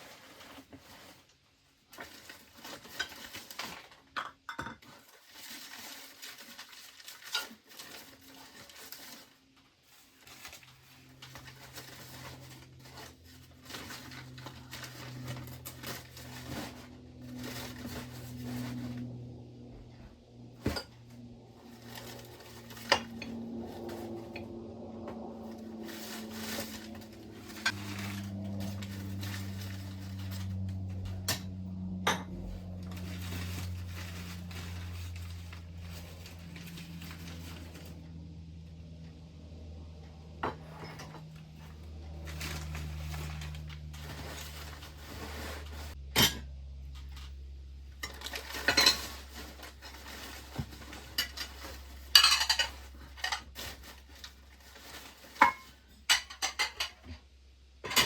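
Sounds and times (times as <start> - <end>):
dishes clinking and clattering: 4.1 - 5.0, 51.0 - 53.5, 55.4 - 57.2.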